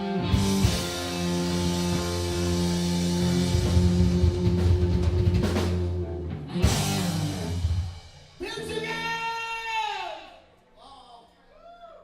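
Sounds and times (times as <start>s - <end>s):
electric guitar: 0.0s - 8.2s
rock band playing: 0.0s - 9.7s
drums: 0.0s - 10.5s.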